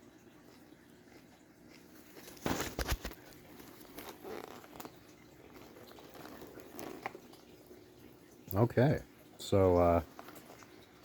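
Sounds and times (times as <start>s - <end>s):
person chewing crunchy cereal: 0.1s - 7.9s.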